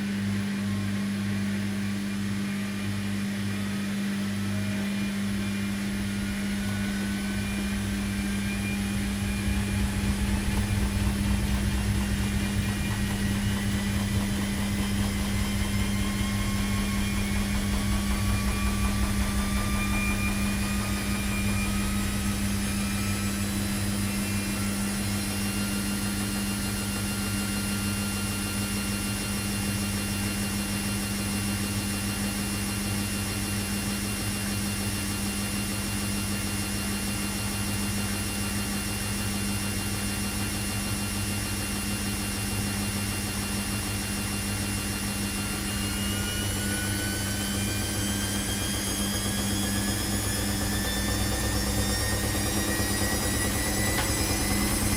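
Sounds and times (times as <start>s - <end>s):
washing machine humming: 0.0s - 54.9s
low rumble: 5.5s - 24.3s.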